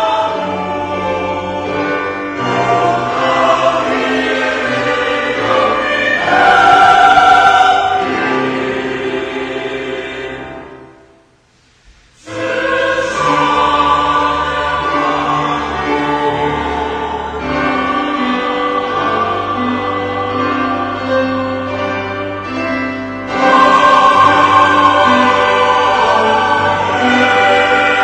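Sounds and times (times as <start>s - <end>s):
church choir singing a hymn: 0.0s - 11.2s, 12.2s - 28.0s.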